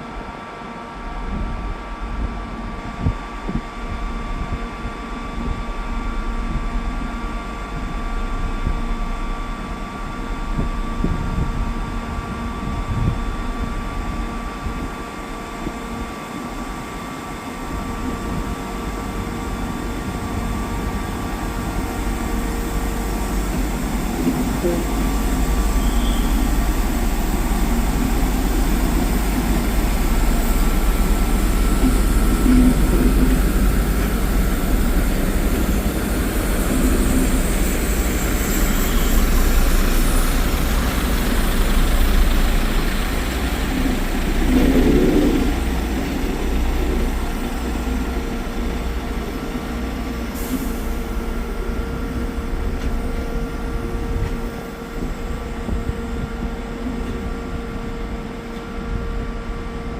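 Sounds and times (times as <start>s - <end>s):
train rumbling past: 0.0s - 59.9s
wheels on rail: 17.9s - 59.2s.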